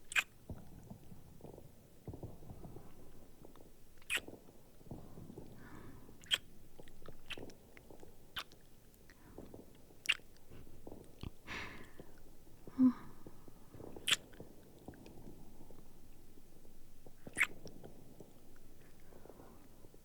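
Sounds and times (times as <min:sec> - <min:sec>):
muffled fireworks rumbling: 0:00.0 - 0:20.0
wet lip smacks: 0:14.0 - 0:14.3.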